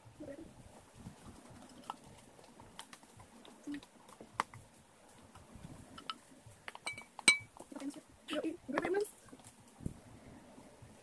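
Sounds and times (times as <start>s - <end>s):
slime mixing clicks and taps: 1.0s - 8.0s.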